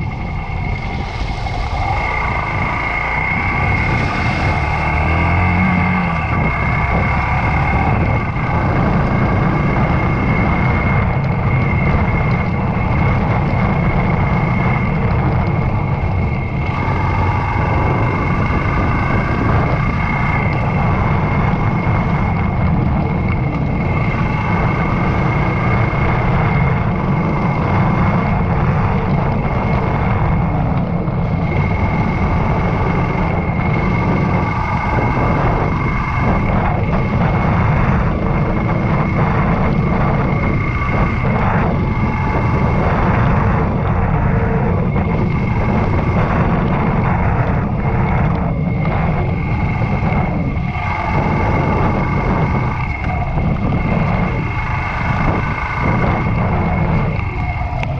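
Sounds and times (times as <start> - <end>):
motorcycle engine running: 0.0 - 57.9
steady whine: 0.0 - 57.9.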